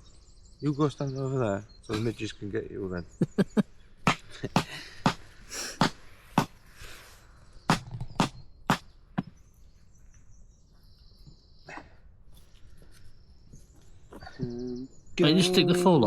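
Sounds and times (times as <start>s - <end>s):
hatchet chopping firewood: 4.1s - 6.6s, 7.7s - 9.3s.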